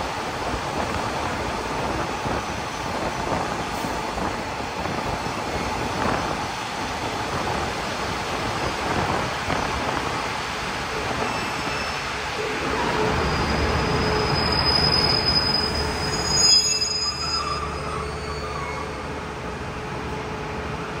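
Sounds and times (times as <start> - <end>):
train wheels rumbling on rails: 0.0 - 21.0
high-pitched wheel squeals: 11.2 - 19.1.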